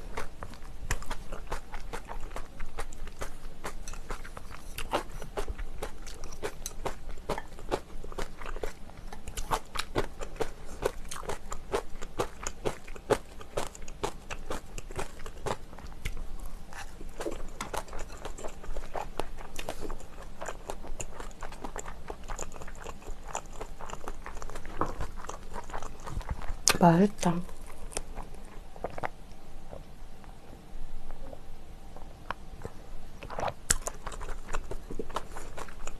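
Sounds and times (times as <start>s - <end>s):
person chewing food: 0.0s - 35.9s.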